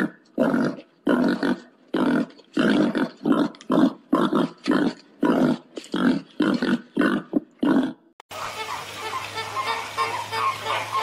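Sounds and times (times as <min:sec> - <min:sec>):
pig grunting: 0:00.0 - 0:08.0.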